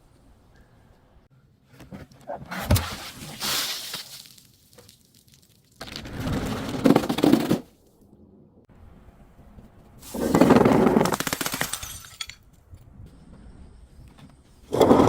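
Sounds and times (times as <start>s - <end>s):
glass crushing and shattering: 11.6s - 12.4s.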